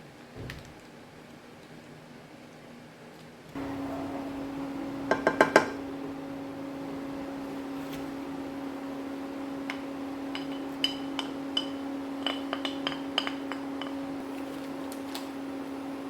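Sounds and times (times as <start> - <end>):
steady electric hum: 3.5 - 16.0
kitchenware clinking: 3.6 - 7.7, 9.6 - 14.3.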